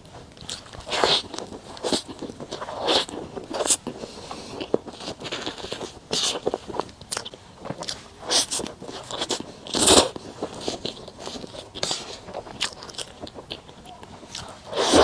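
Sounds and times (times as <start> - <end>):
person biting and chewing: 0.0 - 15.0.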